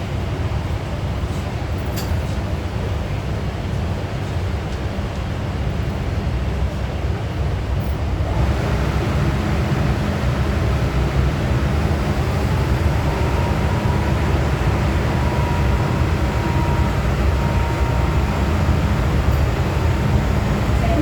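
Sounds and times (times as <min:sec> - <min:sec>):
train wheels rumbling: 0:08.2 - 0:21.0
thin steady whine: 0:08.3 - 0:21.0.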